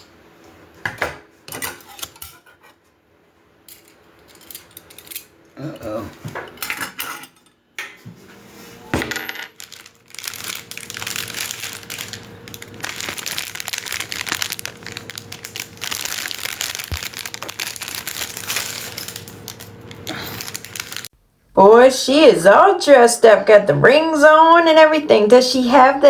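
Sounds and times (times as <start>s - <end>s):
metal parts clinking and rattling: 3.7s - 5.3s, 9.1s - 21.1s
crinkling: 9.5s - 21.1s.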